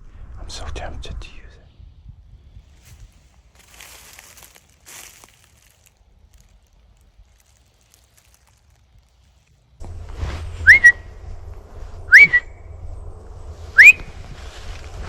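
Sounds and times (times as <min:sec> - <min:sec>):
steady low rumble: 0:00.0 - 0:15.0
short rising whistles: 0:10.6 - 0:11.2, 0:12.1 - 0:12.7, 0:13.7 - 0:14.2.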